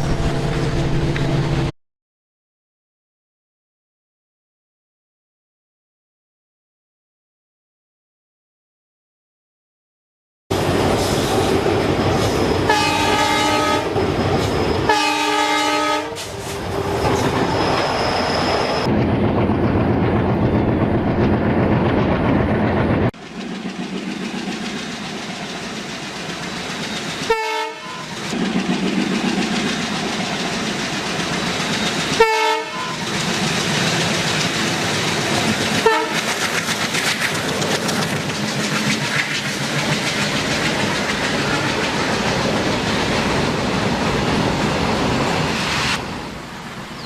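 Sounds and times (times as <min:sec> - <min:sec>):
train wheels rumbling on track: 0:10.5 - 0:47.0
train horn blasts: 0:12.7 - 0:14.0, 0:14.9 - 0:16.4, 0:27.3 - 0:28.2, 0:32.2 - 0:33.0, 0:35.8 - 0:36.2.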